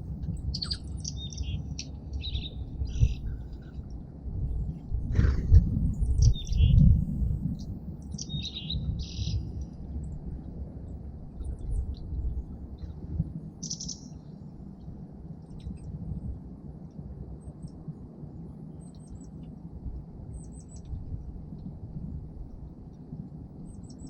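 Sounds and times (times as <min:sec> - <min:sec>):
small songbirds chirping: 0:00.0 - 0:04.9, 0:05.6 - 0:10.2, 0:10.8 - 0:15.9, 0:18.7 - 0:19.5, 0:20.3 - 0:21.0, 0:23.6 - 0:24.0
low rumble: 0:00.0 - 0:17.0.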